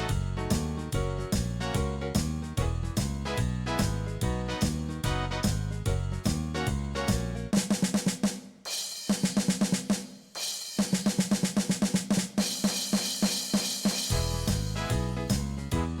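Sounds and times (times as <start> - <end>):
rock band playing: 0.0 - 7.6, 14.1 - 16.0
drum kit playing rapid hits: 0.0 - 16.0.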